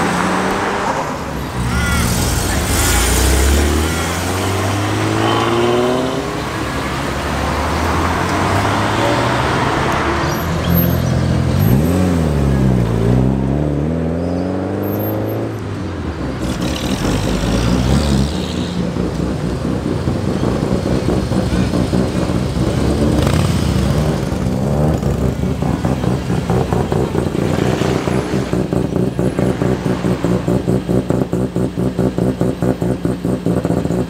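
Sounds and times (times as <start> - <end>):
cars accelerating away: 0.0 - 34.0
turbocharged car engine revving: 0.0 - 34.0.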